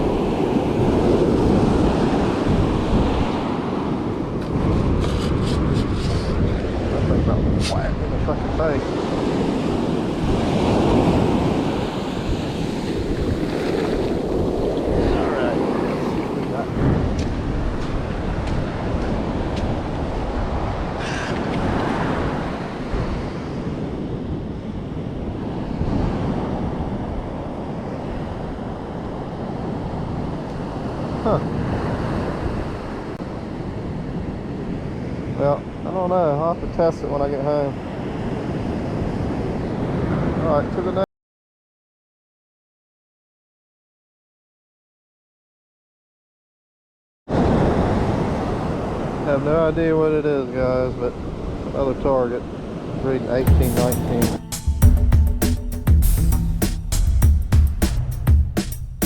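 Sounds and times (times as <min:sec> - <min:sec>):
wind buffeting microphone: 0:00.0 - 0:35.3
surf washing at water's edge: 0:00.0 - 0:41.0, 0:47.3 - 0:54.8.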